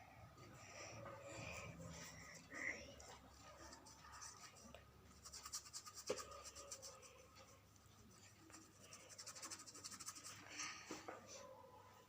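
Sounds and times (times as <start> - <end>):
paintbrush scrubbing canvas: 3.4 - 10.5.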